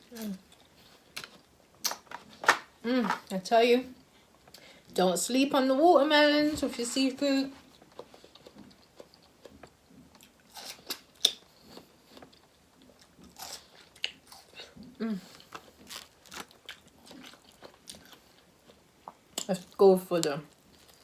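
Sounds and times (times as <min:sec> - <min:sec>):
wet chewing: 0:07.7 - 0:21.0
crisp bites and crunches: 0:15.5 - 0:18.1.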